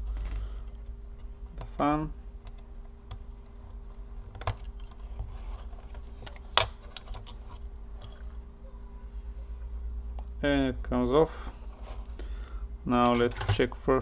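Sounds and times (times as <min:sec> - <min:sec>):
clicks of plastic parts handled: 0:00.0 - 0:01.8.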